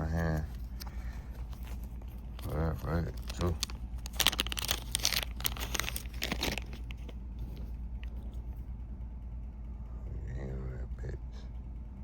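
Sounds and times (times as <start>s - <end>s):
plastic packaging crinkling: 0.0s - 8.5s
steady low hum: 0.0s - 12.0s.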